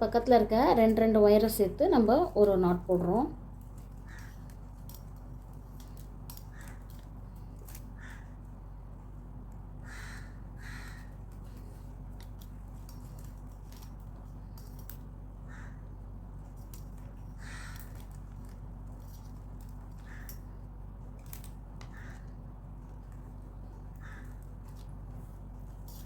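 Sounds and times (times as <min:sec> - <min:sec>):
low hum: 0:00.0 - 0:26.0
crow cawing: 0:04.0 - 0:04.5, 0:06.4 - 0:07.0, 0:07.9 - 0:08.4, 0:09.8 - 0:11.2, 0:15.4 - 0:15.9, 0:17.3 - 0:18.1, 0:20.0 - 0:20.4, 0:21.8 - 0:22.4, 0:23.9 - 0:24.5.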